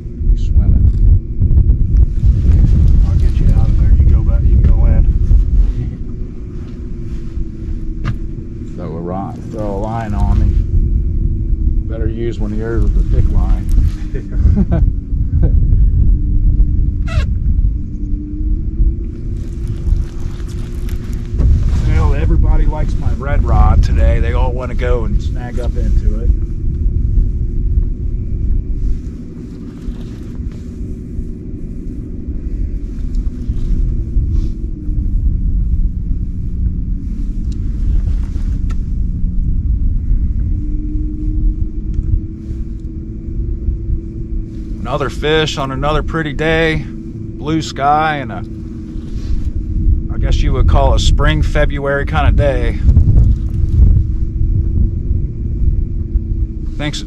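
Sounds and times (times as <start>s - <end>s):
motor rumbling: 0.0s - 57.0s
steady low hum: 0.0s - 57.0s
wind buffeting microphone: 0.0s - 57.0s.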